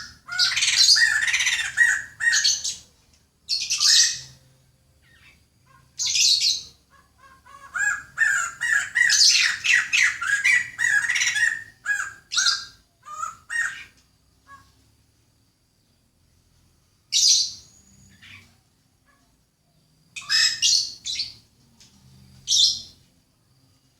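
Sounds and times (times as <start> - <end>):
birds chirping and squawking: 0.0 - 2.9, 3.5 - 14.9, 17.2 - 19.4, 20.2 - 21.5, 22.3 - 23.0
loud bird call: 0.0 - 2.9, 3.5 - 4.4, 5.0 - 14.8, 20.2 - 21.4.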